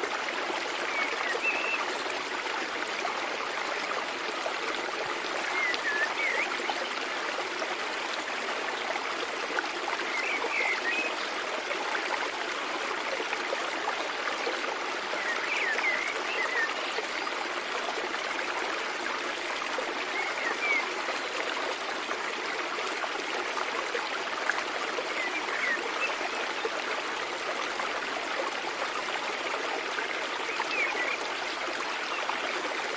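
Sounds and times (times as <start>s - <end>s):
stream water rushing: 0.0s - 32.9s.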